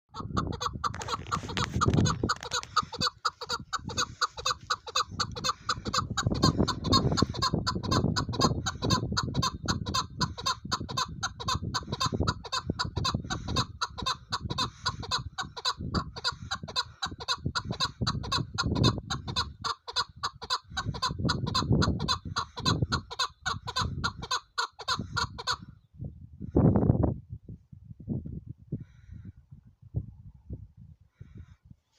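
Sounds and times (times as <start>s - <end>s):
partridge clucking call: 0.1s - 25.6s.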